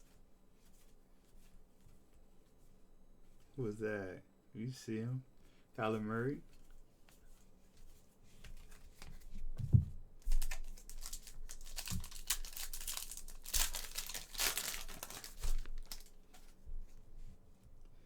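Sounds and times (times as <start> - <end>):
foil wrapper crinkling and tearing: 10.3 - 16.5.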